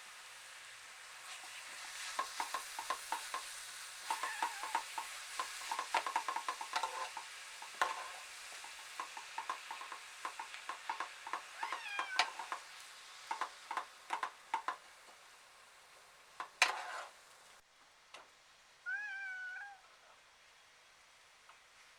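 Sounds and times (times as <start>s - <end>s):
light sizzle: 0.0s - 21.9s
utensil scraping frying pan: 1.2s - 15.2s, 16.3s - 17.4s.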